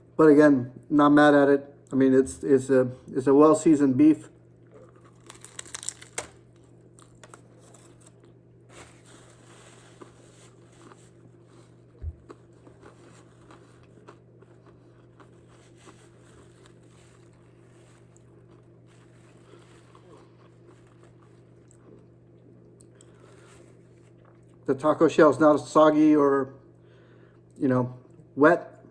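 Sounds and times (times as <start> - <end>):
crunching and chewing taco: 4.2 - 24.9.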